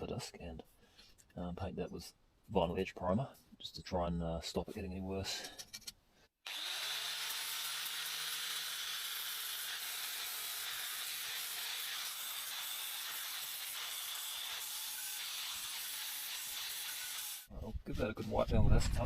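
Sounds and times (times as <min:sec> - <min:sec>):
angle grinder grinding metal: 0:06.4 - 0:17.5.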